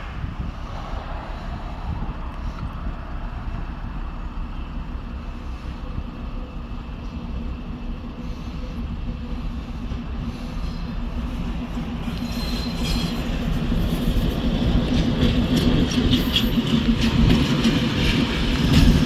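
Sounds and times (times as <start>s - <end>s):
faint engine hum: 0.0s - 12.4s
freight train rumbling: 0.0s - 19.0s.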